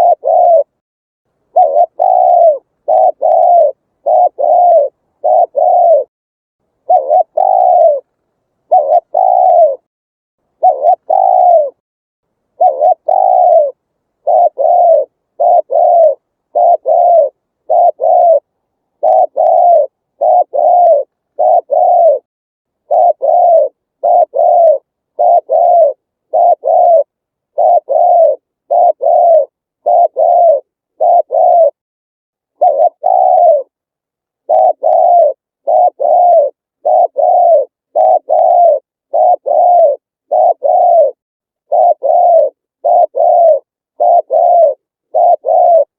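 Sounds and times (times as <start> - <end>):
dove cooing: 0.0 - 0.8, 1.5 - 6.1, 6.8 - 9.9, 10.5 - 11.8, 12.6 - 31.8, 32.5 - 33.8, 34.4 - 45.9.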